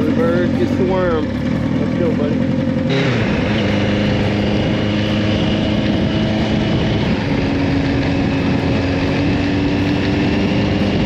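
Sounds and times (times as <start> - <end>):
motorcycle engine running: 0.0 - 11.0
wind rushing: 3.0 - 11.0.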